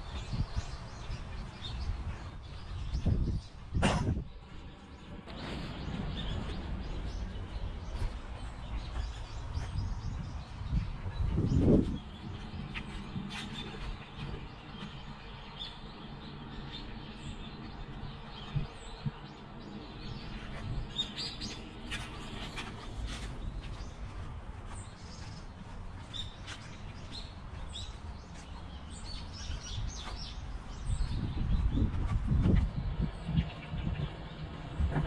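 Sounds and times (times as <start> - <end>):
low outdoor rumble: 0.0 - 35.0
small birds chirping: 0.0 - 35.0.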